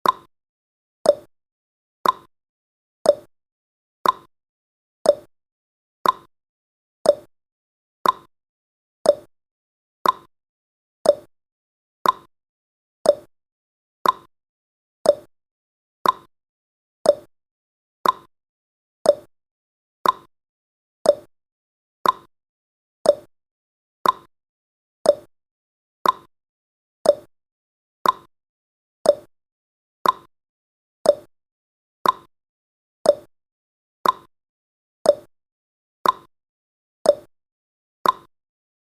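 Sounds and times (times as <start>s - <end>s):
clock ticking: 2.0s - 2.3s, 4.0s - 4.3s, 6.0s - 6.3s, 8.0s - 8.3s, 10.0s - 10.3s, 12.0s - 12.3s, 13.1s - 13.3s, 14.0s - 14.3s, 15.1s - 15.3s, 16.0s - 16.3s, 18.0s - 18.3s, 20.0s - 20.3s, 22.0s - 22.3s, 24.0s - 24.3s, 25.1s - 25.3s, 26.0s - 26.3s, 27.1s - 27.3s, 28.0s - 28.3s, 29.1s - 29.3s, 30.0s - 30.3s, 32.0s - 32.3s, 33.1s - 33.3s, 34.0s - 34.3s, 36.0s - 36.3s, 38.0s - 38.3s.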